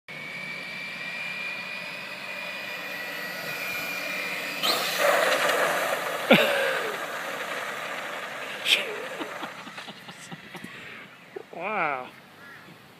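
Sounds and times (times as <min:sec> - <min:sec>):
toy truck motor whining: 0:00.1 - 0:11.2.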